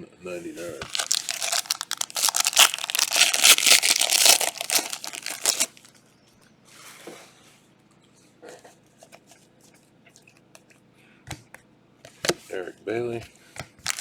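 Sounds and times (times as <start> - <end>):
cards rustling: 0.6 - 5.9
plastic wrapper tearing and crinkling: 0.8 - 5.9.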